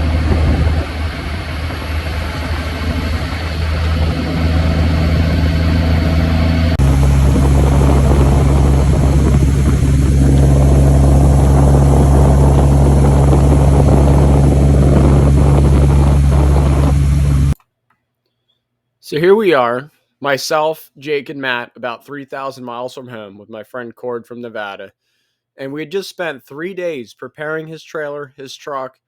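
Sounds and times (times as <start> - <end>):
vehicle engine running: 0.0 - 17.6.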